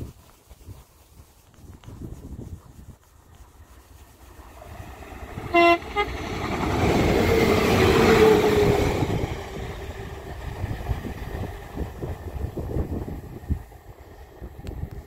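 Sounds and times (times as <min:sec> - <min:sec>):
wind buffeting microphone: 0:00.0 - 0:15.0
train passing with whine: 0:03.4 - 0:15.0
train two-note horn: 0:05.4 - 0:06.4.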